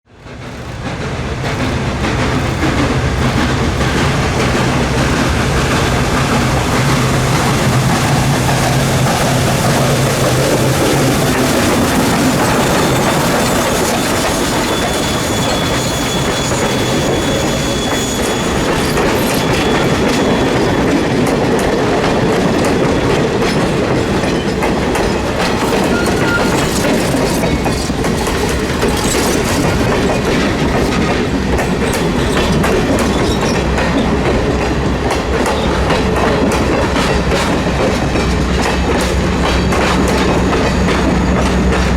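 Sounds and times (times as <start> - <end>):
train wheels clacking: 0.1 - 41.9
wheels squealing on rails: 0.3 - 41.9.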